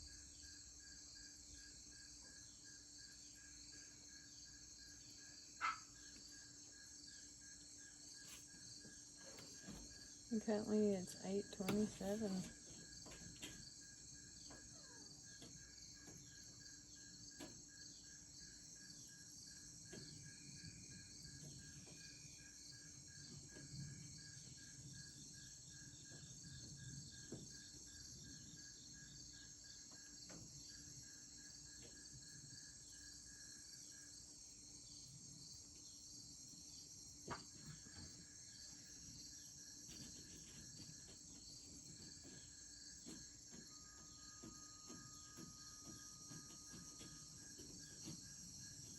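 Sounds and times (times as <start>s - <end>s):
crickets and insects chirping: 0.0s - 48.9s.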